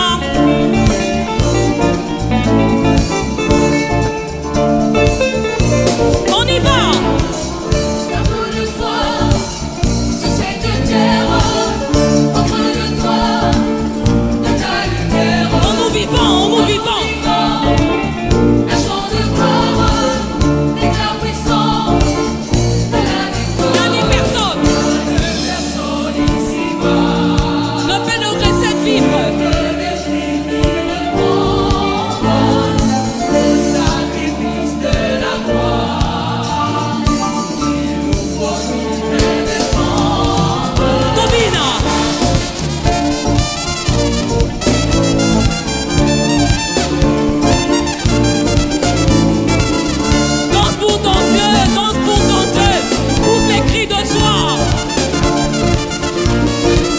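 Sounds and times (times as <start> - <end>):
band accompaniment: 0.0 - 56.9
choir singing gospel song: 0.0 - 56.9
steady bass beat: 39.8 - 56.9.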